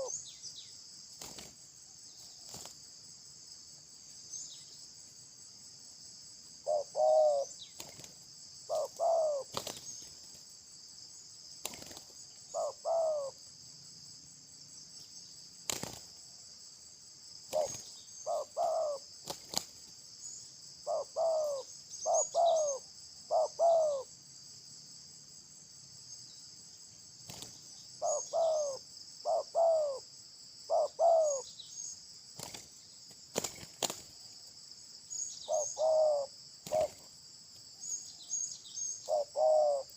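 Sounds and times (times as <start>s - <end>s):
bird calling: 0.0s - 0.7s, 6.6s - 8.0s, 8.7s - 10.2s, 12.5s - 13.4s, 17.5s - 19.0s, 20.8s - 24.1s, 28.0s - 30.1s, 30.7s - 32.0s, 35.2s - 37.1s, 37.8s - 39.9s
insects droning: 0.0s - 39.9s.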